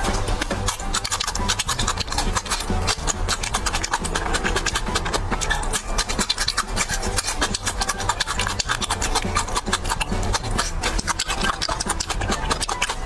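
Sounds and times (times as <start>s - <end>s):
cabbage crunching while chewed: 0.0s - 13.0s.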